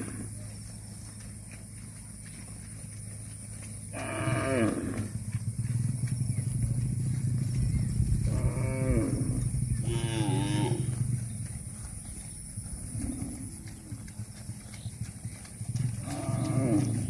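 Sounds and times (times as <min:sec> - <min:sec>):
cow mooing: 0:00.0 - 0:00.4, 0:03.9 - 0:05.2, 0:08.2 - 0:11.1, 0:16.0 - 0:17.0
steady low hum: 0:00.0 - 0:17.0.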